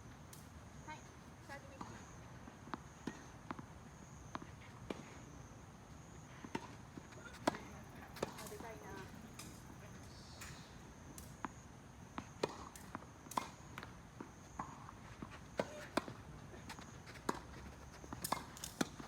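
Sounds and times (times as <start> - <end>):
tennis ball struck and bouncing: 6.5 - 9.6, 12.4 - 13.6, 17.2 - 17.5, 18.1 - 19.0.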